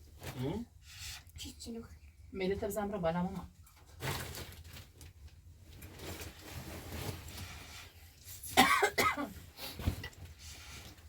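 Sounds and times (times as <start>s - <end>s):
person coughing: 8.5s - 9.4s.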